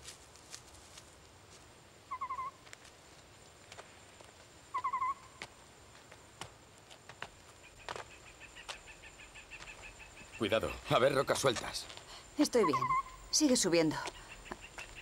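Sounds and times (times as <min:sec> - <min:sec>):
footsteps on loose stones: 0:00.0 - 0:01.8, 0:02.6 - 0:04.6, 0:05.4 - 0:08.8, 0:09.5 - 0:12.1
bird trill: 0:02.1 - 0:02.6, 0:04.7 - 0:05.4, 0:12.4 - 0:15.0.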